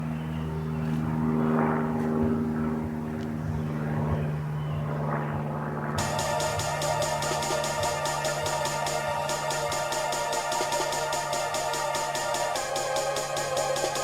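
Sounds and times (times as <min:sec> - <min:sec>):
low synth drone: 0:05.8 - 0:14.0
electronic hi-hats: 0:06.0 - 0:14.0
whooshing filtered noise: 0:06.0 - 0:14.0.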